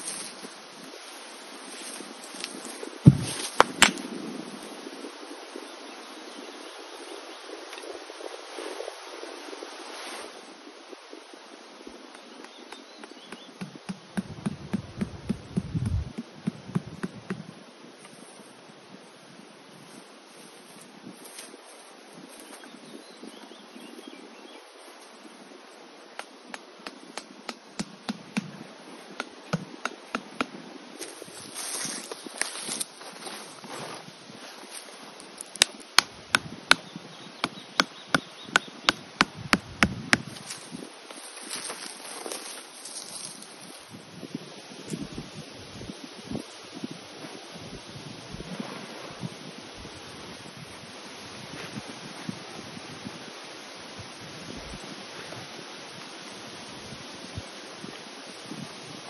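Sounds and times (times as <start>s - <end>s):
knocks and low thuds: 3.0s - 4.0s, 13.3s - 17.5s.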